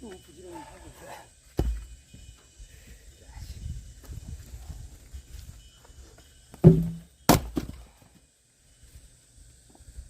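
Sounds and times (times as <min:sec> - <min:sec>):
axe thunking into log: 0:06.6 - 0:07.8.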